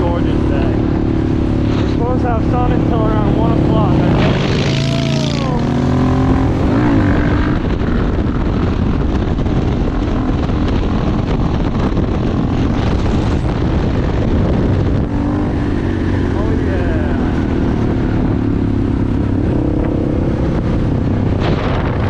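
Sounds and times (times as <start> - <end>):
motorcycle engine revving: 0.0 - 22.0
wind and road noise: 0.0 - 22.0.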